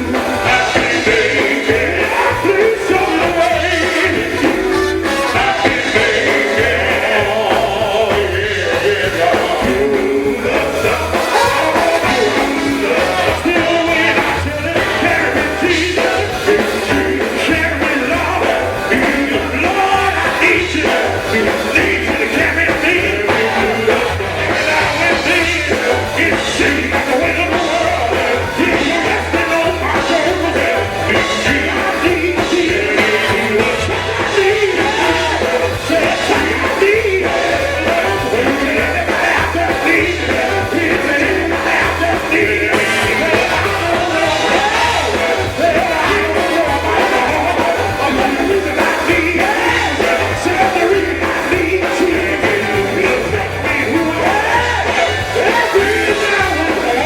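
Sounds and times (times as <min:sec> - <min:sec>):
pulsing bass line: 0:00.0 - 0:57.0
voices singing gospel: 0:00.0 - 0:57.0.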